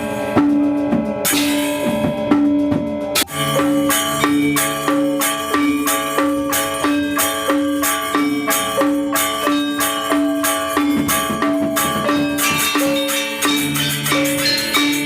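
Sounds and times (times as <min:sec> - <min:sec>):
metallophones ringing: 0:00.0 - 0:15.0
high jangling percussion: 0:03.2 - 0:15.0.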